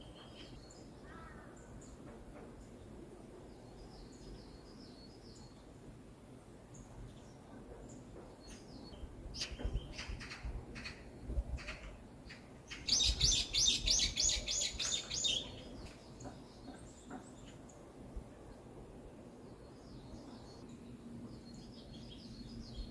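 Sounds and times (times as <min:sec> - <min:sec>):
songbirds calling: 0:06.7 - 0:18.6, 0:19.4 - 0:22.9.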